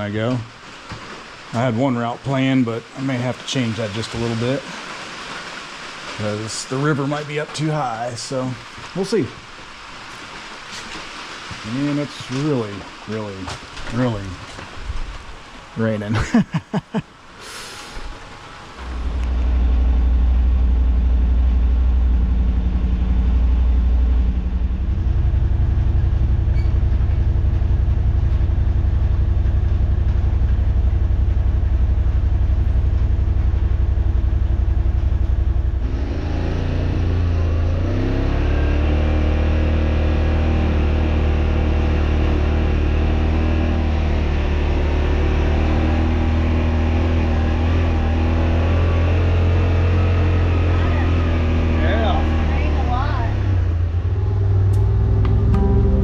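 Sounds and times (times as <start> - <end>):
utility vehicle engine driving: 17.9 - 56.0.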